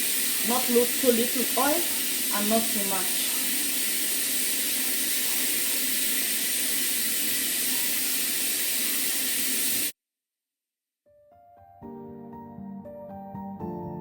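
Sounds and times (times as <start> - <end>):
onion sizzling in hot oil: 0.0 - 9.9.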